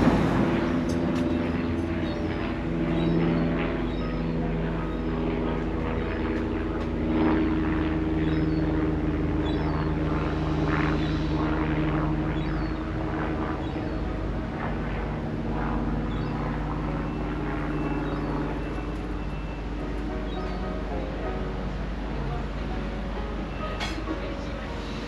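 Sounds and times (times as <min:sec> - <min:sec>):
humming engine drone: 0:00.0 - 0:25.0
high bird chirps: 0:16.1 - 0:19.6.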